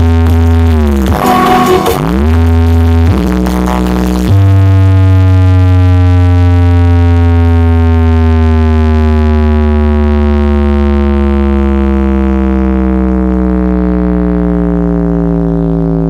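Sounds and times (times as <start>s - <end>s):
deep synth bass note sliding down: 1.0s - 3.3s.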